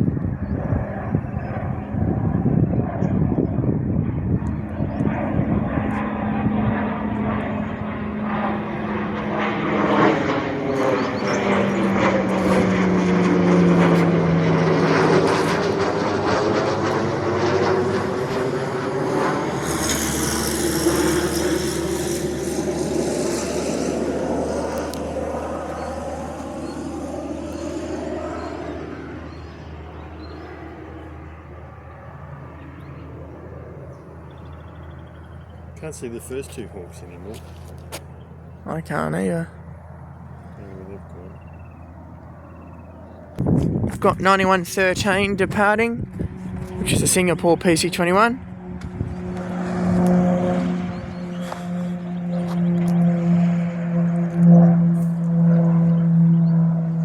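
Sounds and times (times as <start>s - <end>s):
turboprop plane flying past: 0.0s - 57.0s.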